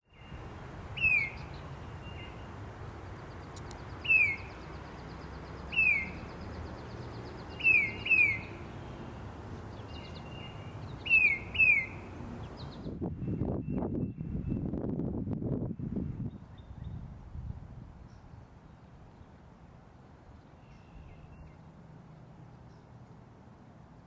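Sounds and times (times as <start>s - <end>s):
bird whistling downward notes: 1.0s - 2.4s, 4.0s - 4.5s, 5.7s - 6.3s, 7.5s - 8.5s, 9.9s - 12.8s
faint bird trill: 1.0s - 2.4s, 4.0s - 9.0s, 9.8s - 12.9s
faint high bird chirps: 1.0s - 2.4s, 3.3s - 9.0s, 9.8s - 14.7s.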